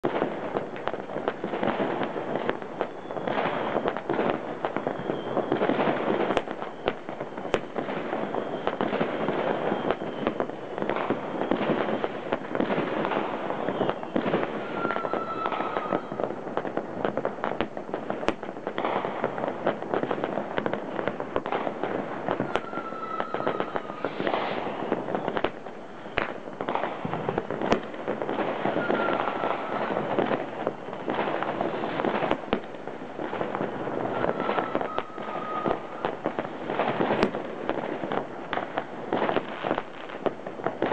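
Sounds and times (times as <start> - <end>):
fireworks crackling and banging: 0.0 - 40.9
whistling rocket: 1.7 - 16.4, 20.2 - 32.6, 33.3 - 37.4.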